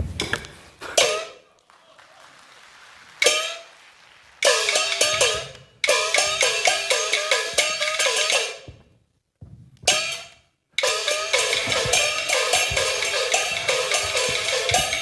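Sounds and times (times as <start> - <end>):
gongs and cymbals struck: 4.4 - 8.7, 9.9 - 15.0.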